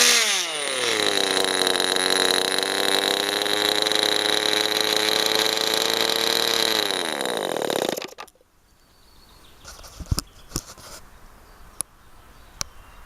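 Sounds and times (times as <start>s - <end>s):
model engine running at high revs: 0.0s - 8.3s.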